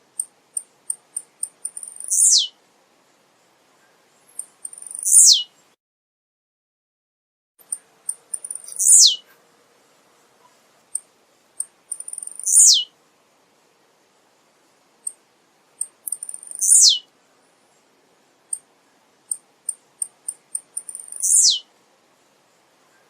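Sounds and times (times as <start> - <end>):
bird singing: 0.6 - 2.6, 4.1 - 5.7, 7.6 - 9.3, 11.6 - 12.9, 15.8 - 17.1, 19.7 - 21.7.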